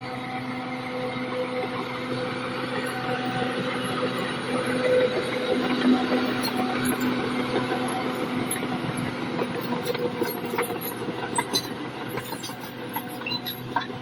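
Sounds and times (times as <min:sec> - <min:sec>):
bulldozer diesel engine running: 0:00.0 - 0:14.0
crawler tracks clanking: 0:02.9 - 0:14.0.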